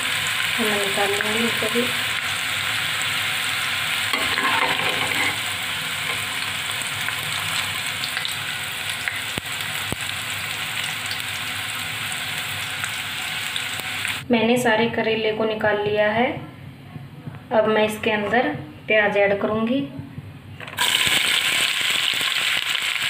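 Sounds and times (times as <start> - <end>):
food sizzling in hot oil: 0.0 - 14.2, 20.8 - 23.0.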